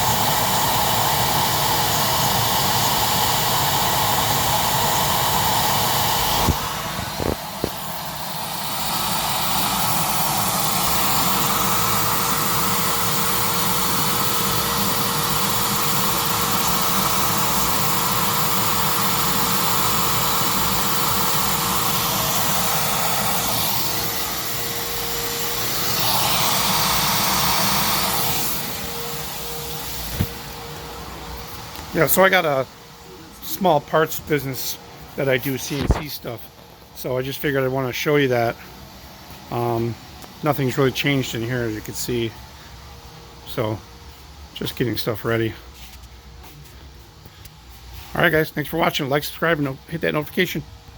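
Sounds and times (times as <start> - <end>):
cnc machine whirring: 0.0 - 36.5.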